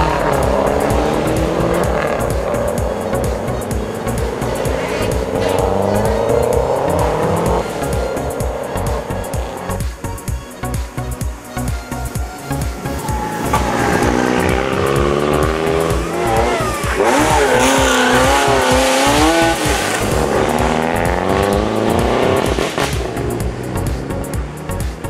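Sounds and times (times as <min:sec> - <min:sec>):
car engine revving: 0:00.0 - 0:10.0, 0:12.5 - 0:25.0
background music with beat: 0:00.0 - 0:25.0.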